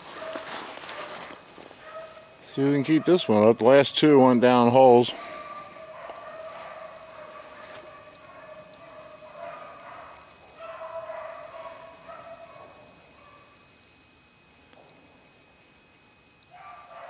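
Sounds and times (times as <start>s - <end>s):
hounds baying: 0.0s - 4.2s, 5.1s - 13.7s, 16.5s - 17.0s.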